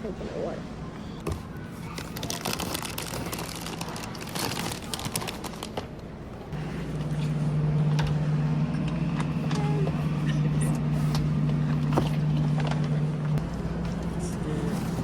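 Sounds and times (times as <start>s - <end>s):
items being handled: 1.2s - 15.0s
steady low hum: 6.3s - 15.0s.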